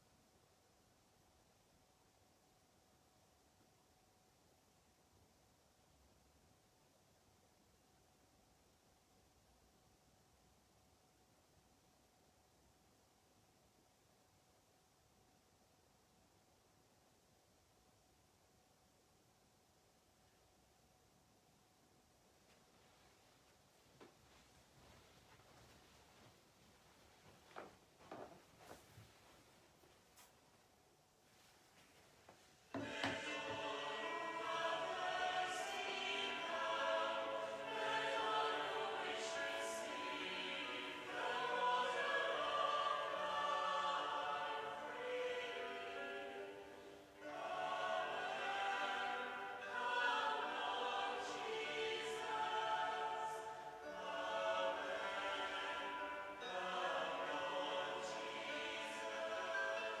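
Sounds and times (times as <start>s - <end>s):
choir singing sacred music: 32.7s - 60.0s.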